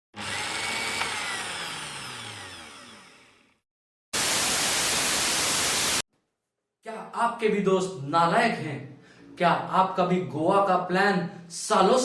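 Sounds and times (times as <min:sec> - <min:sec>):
static hiss: 0:04.2 - 0:06.0.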